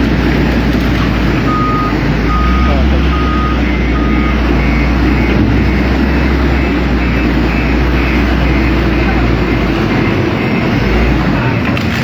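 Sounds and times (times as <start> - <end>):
heavy vehicle engine running: 0.0 - 12.0
high reversing alarm beeping: 1.4 - 11.6
low reversing alarm beep: 1.4 - 11.6.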